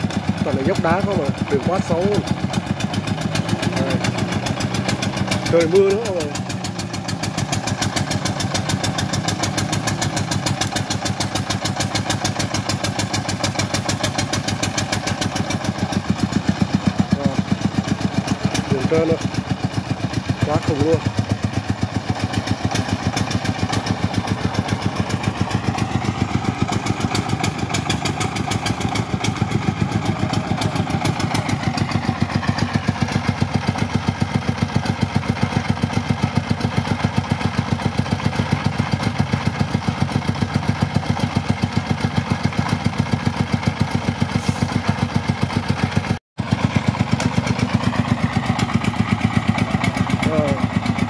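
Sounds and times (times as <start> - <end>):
diesel engine chugging: 0.0 - 51.0.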